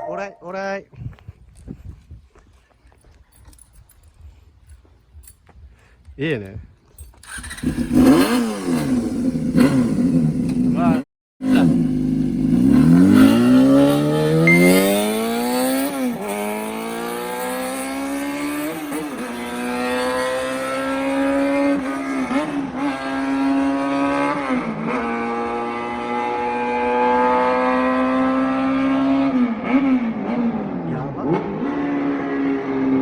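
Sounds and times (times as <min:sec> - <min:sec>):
motorcycle engine revving: 0:07.1 - 0:33.0.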